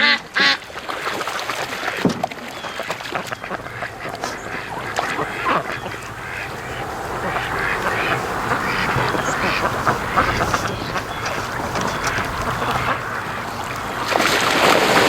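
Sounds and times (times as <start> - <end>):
ducks quacking: 0.0 - 15.0
wind noise: 3.0 - 15.0.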